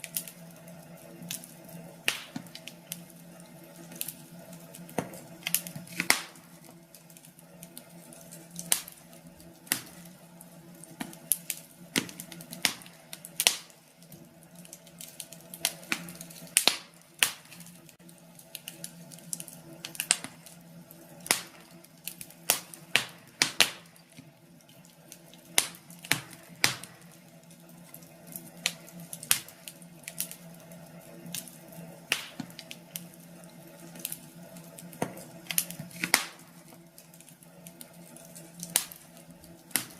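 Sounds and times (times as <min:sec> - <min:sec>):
steady low hum: 0:00.0 - 0:39.9
wood fire crackling and popping: 0:00.0 - 0:39.9.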